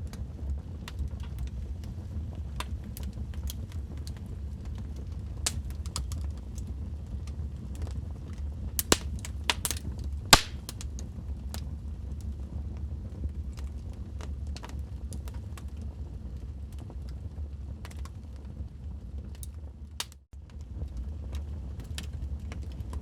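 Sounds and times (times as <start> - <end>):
low rumble of fire: 0.0 - 23.0
wood fire crackling and popping: 0.5 - 8.0, 8.7 - 11.6, 13.5 - 15.8, 17.8 - 18.4, 19.3 - 23.0.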